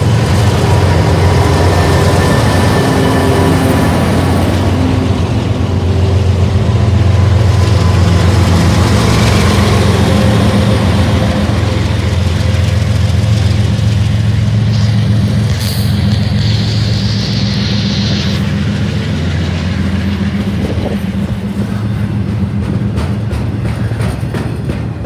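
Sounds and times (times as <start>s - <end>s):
freight cars rolling by: 0.0s - 25.0s
locomotive engines droning: 0.0s - 25.0s.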